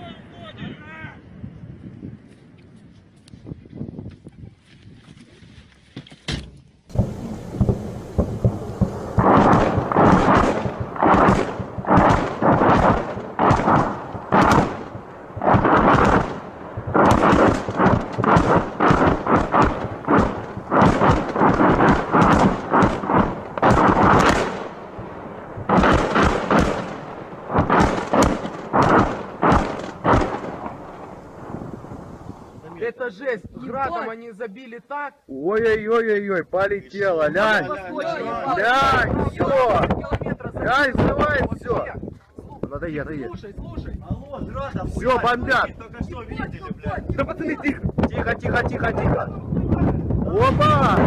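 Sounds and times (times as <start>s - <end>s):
rocket launcher blasts: 6.9s - 32.6s.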